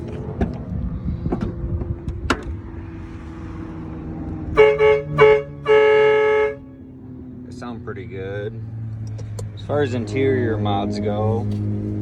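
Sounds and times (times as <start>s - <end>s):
train horn blasts: 4.6s - 6.7s.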